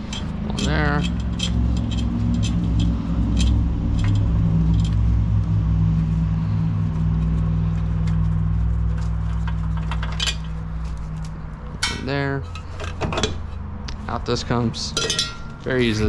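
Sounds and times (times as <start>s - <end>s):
wrenches clinking on bolts: 0.0s - 3.5s, 11.8s - 13.4s, 14.8s - 15.6s
low mechanical hum: 0.0s - 16.0s.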